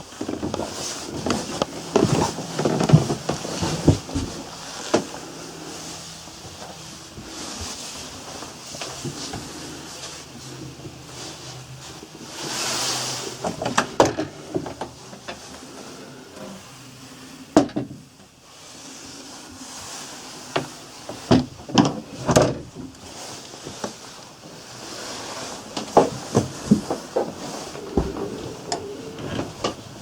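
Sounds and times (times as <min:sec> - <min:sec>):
low background hum: 0:00.0 - 0:30.0
knocks and clunks: 0:25.8 - 0:30.0.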